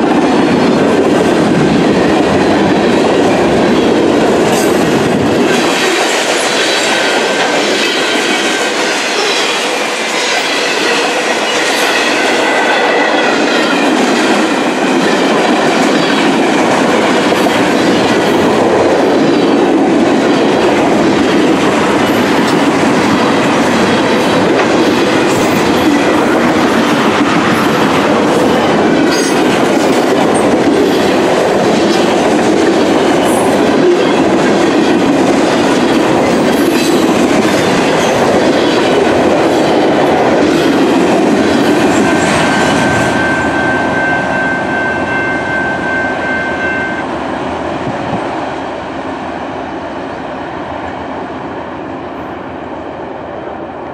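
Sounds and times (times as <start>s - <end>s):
freight train rumbling: 0.0s - 53.9s.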